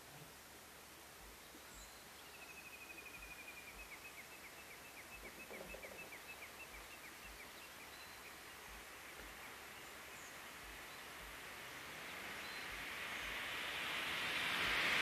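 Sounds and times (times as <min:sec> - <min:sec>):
bird song trilling: 0:01.6 - 0:11.0.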